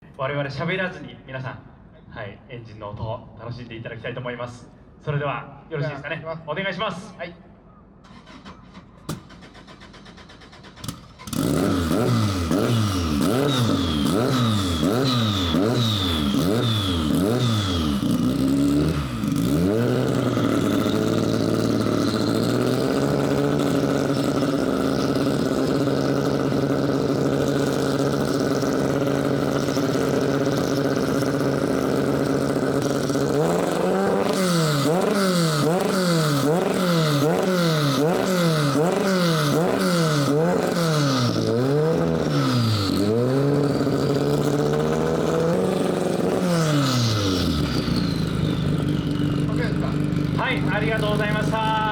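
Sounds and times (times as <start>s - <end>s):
race car engine starting: 8.0s - 51.9s
race car engine revving: 9.4s - 51.9s
race car engine idling: 11.3s - 51.9s.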